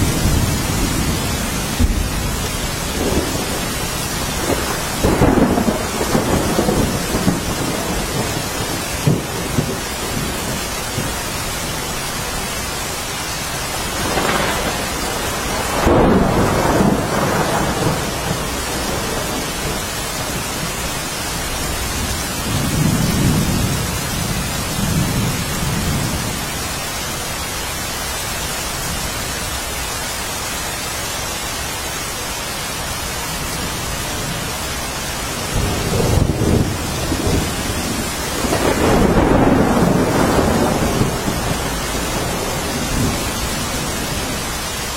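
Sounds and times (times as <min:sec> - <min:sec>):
rolling thunder: 0:00.0 - 0:12.3, 0:13.7 - 0:26.5, 0:35.2 - 0:44.9
heavy rain: 0:00.0 - 0:44.9.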